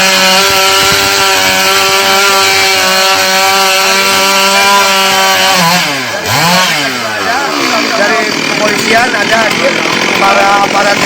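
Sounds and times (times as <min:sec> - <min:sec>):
chainsaw cutting tree trunk: 0:00.0 - 0:11.0.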